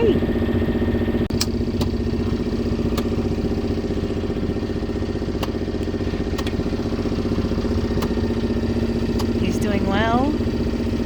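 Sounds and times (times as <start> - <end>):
boat motor throbbing: 0.0 - 11.0.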